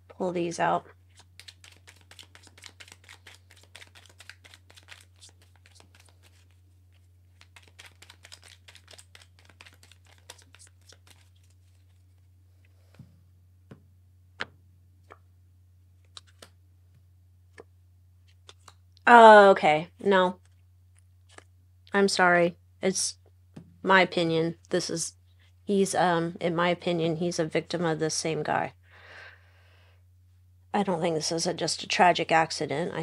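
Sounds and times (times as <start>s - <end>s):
low electrical hum: 0.0s - 33.0s
cards flicking and rustling: 1.1s - 12.3s, 16.0s - 16.6s, 17.5s - 18.8s, 20.4s - 21.5s.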